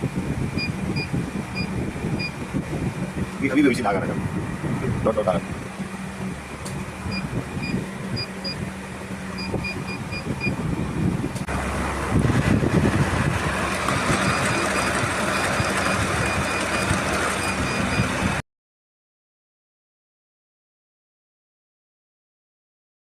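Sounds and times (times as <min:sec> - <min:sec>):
short electronic beeps: 0:00.6 - 0:02.4, 0:07.1 - 0:08.6, 0:09.3 - 0:10.6, 0:14.2 - 0:18.2
counting machine whirring: 0:13.6 - 0:18.2.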